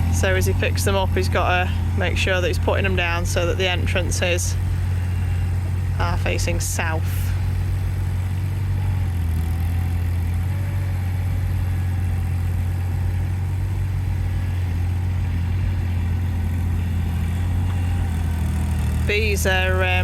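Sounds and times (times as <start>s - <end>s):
loader engine humming: 0.0s - 20.0s.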